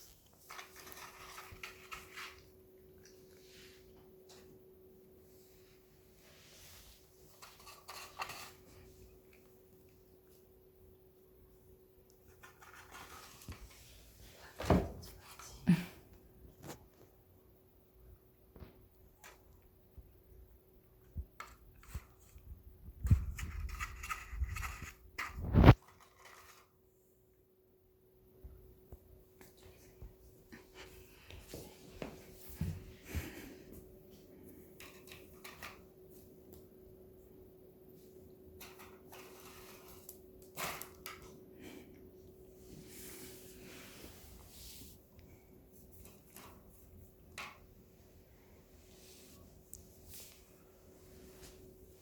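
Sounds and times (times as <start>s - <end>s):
rustling and scraping: 0.0s - 2.6s, 5.4s - 9.4s, 12.2s - 15.4s, 21.4s - 26.9s, 38.0s - 41.4s, 42.6s - 52.0s
faint steady hum: 0.0s - 52.0s.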